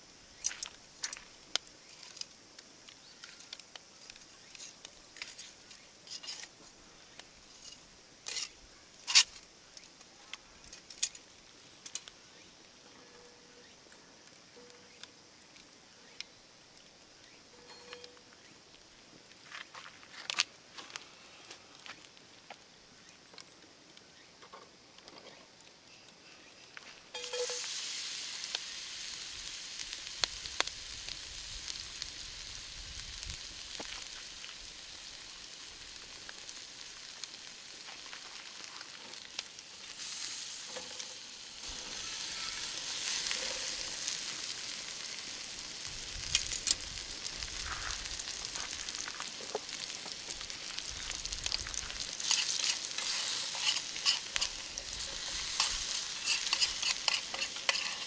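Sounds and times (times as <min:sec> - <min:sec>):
food sizzling in oil: 0:00.0 - 0:09.4, 0:27.1 - 0:58.0.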